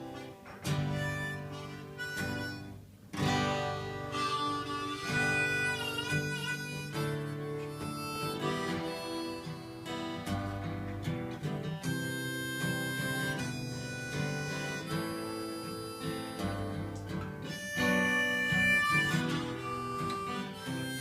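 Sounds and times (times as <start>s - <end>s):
harmonica with bending notes: 0.0s - 21.0s
strummed acoustic guitar: 0.0s - 21.0s.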